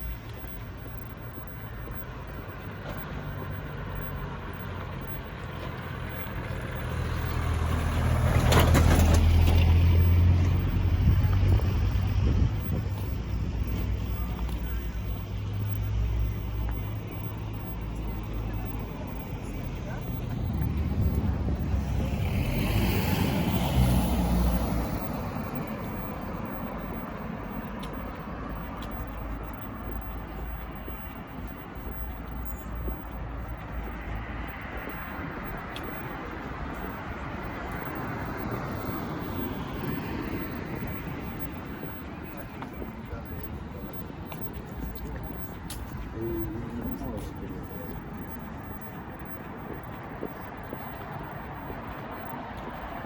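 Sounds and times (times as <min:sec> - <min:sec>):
motor vehicle engine hum: 0:00.0 - 0:53.0.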